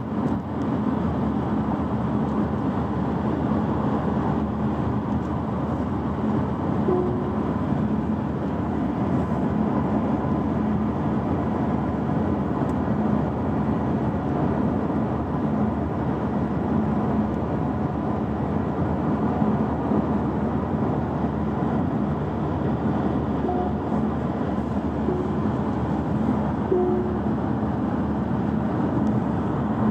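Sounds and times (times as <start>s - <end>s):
road and tyre noise in car: 0.0s - 29.9s
faint low drone: 23.3s - 28.8s.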